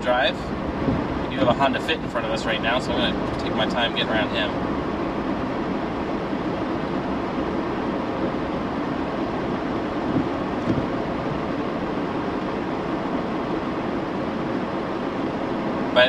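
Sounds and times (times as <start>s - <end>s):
road and engine noise: 0.0s - 16.0s
light bump: 10.1s - 11.0s.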